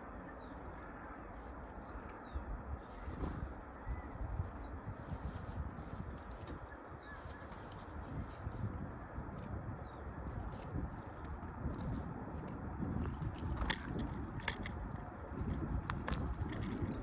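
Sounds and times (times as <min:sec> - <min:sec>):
songbird singing: 0:00.0 - 0:04.9, 0:06.1 - 0:08.4, 0:09.6 - 0:11.8, 0:13.9 - 0:17.0
birds pecking and crunching feed: 0:10.3 - 0:17.0.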